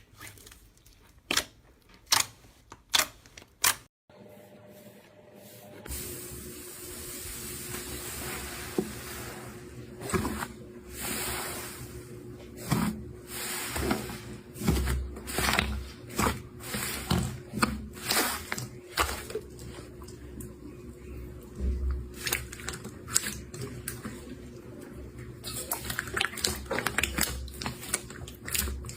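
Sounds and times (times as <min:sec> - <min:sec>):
slime crackling and squishing: 0:25.4 - 0:28.9.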